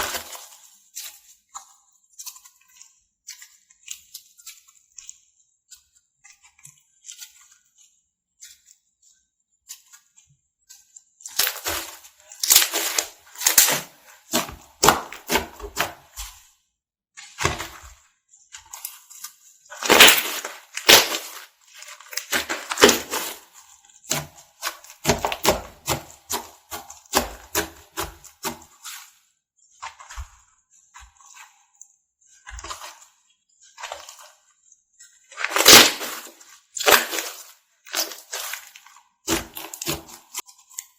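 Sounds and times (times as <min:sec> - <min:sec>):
slime squishes: 0:00.0 - 0:16.6, 0:17.2 - 0:40.9
crunchy slime squeezed by hand: 0:19.7 - 0:21.5, 0:22.1 - 0:23.4, 0:35.4 - 0:37.4.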